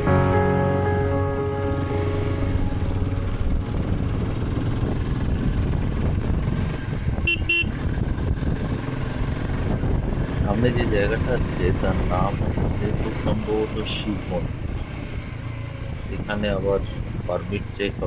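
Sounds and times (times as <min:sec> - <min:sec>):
wind and road noise: 0:00.0 - 0:18.0
motorcycle engine running: 0:02.1 - 0:11.7
vehicle horn toots: 0:07.2 - 0:07.8.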